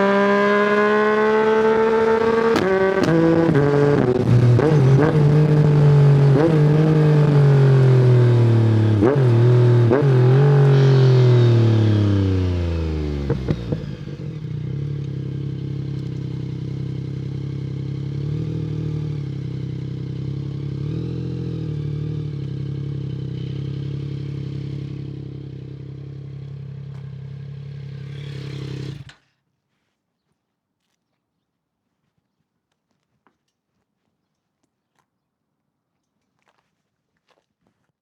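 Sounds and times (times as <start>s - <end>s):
motorcycle engine idling: 10.6s - 29.2s.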